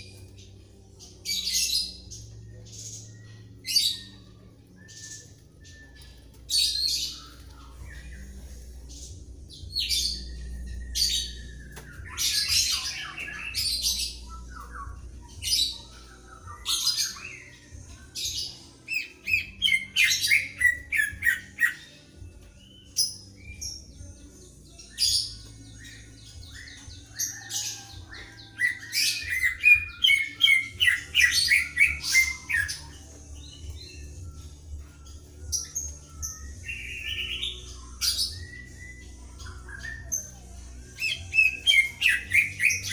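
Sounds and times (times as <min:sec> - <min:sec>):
birds singing whistled phrases: 0:01.3 - 0:08.3, 0:09.4 - 0:24.2, 0:24.8 - 0:42.9.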